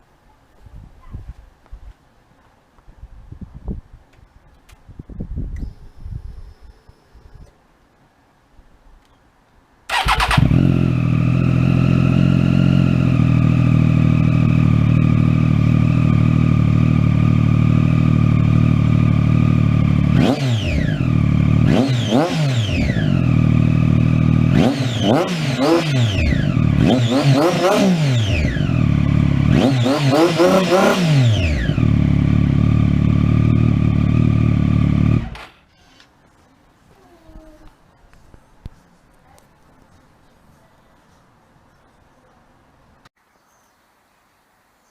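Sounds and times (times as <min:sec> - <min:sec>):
motorcycle engine idling and revving: 0:09.9 - 0:35.5.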